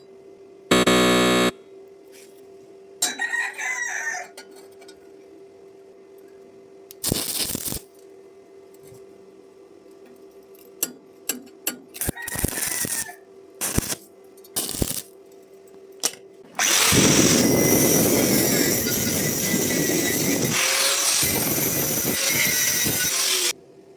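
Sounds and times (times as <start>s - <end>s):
steady hum: 0.7s - 1.8s
welding arc crackling and hissing: 7.0s - 7.9s, 12.3s - 13.0s, 13.6s - 14.0s, 14.6s - 15.1s, 16.6s - 23.6s.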